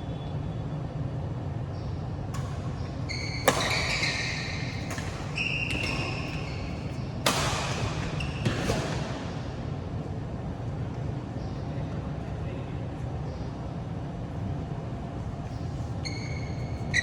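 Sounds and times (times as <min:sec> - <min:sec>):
rackets striking shuttlecock: 0:02.3 - 0:09.4
shoes squeaking on floor: 0:03.0 - 0:09.0, 0:15.8 - 0:17.0.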